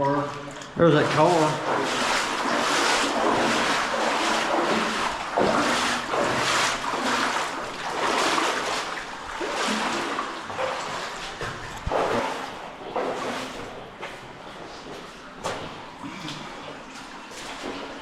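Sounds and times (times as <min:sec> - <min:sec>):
water rushing in a cave stream: 0:00.0 - 0:18.0.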